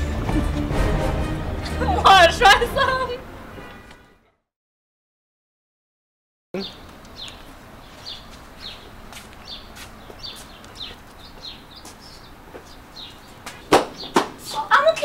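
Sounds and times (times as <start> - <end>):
small bird chirping: 6.6 - 14.7.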